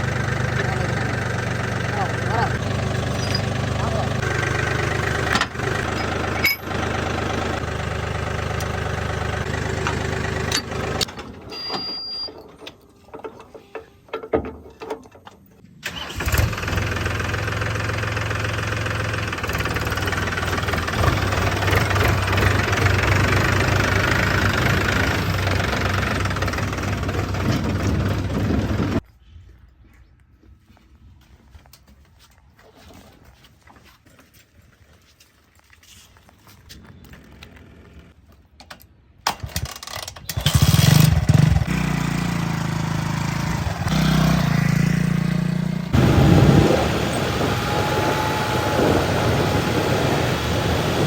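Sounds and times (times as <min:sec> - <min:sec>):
diesel engine running: 0:00.0 - 0:11.6, 0:15.8 - 0:29.0, 0:40.4 - 0:51.0.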